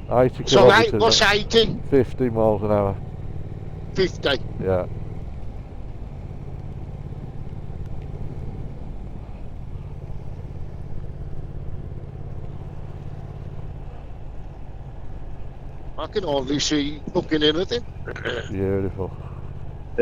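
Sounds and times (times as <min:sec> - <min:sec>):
motorcycle engine cruising: 0:00.0 - 0:20.0
road noise: 0:00.0 - 0:20.0.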